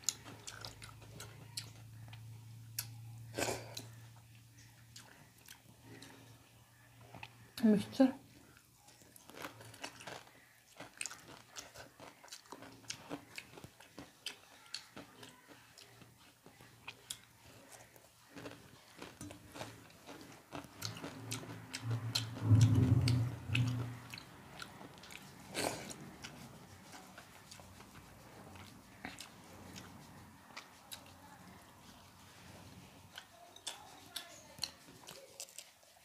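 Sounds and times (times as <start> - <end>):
crunching snack: 8.9 - 26.0
soft mouth sounds: 16.9 - 31.6
low hum: 21.1 - 24.7.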